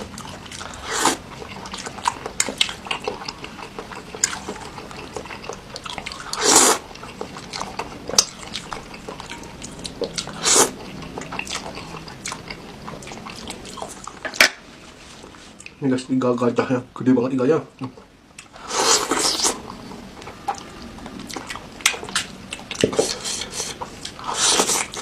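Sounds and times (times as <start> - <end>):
wet chewing: 0.0 - 14.2, 17.8 - 25.0
loud slurps: 0.6 - 1.2, 6.2 - 6.8, 10.2 - 10.8, 18.6 - 19.7, 22.8 - 25.0.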